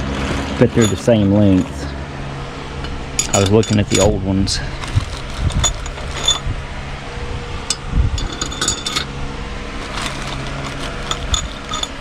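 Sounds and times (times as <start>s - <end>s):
steady low hum: 0.0s - 12.0s
steel bolts clinking: 0.7s - 1.2s, 2.8s - 4.2s, 7.7s - 9.1s, 11.0s - 12.0s.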